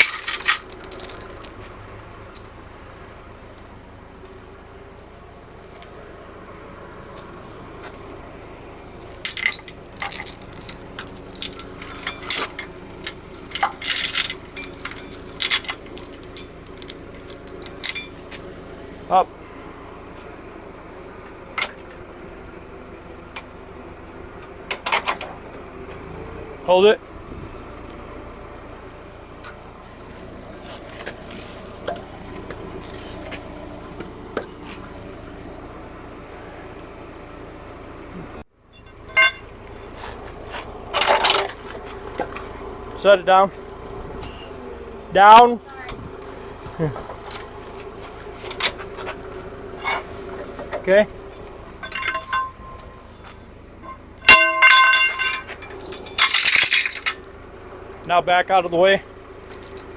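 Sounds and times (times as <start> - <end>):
metal clinks and clanks: 0.0 - 1.6, 9.2 - 18.2, 38.7 - 39.6, 51.8 - 57.4, 59.4 - 59.9
forklift engine idling: 0.0 - 59.9.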